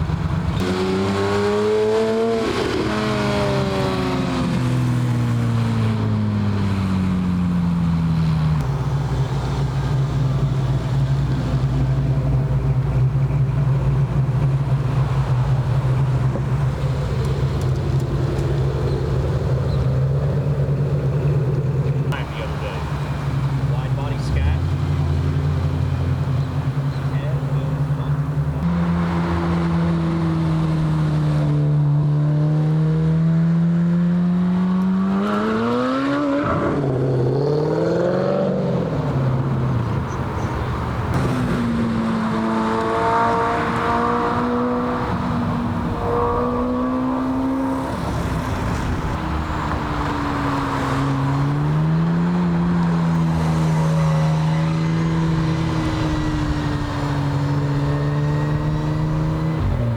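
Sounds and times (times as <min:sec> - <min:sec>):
cars driving by: 0:00.0 - 0:59.9.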